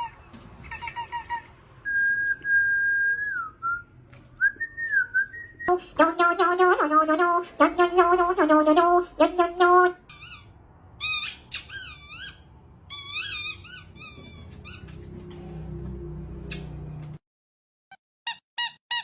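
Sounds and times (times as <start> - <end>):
high chirping squeaks: 0.0 - 1.6, 10.0 - 15.3
short squeaky notes: 9.6 - 15.2, 18.3 - 19.0.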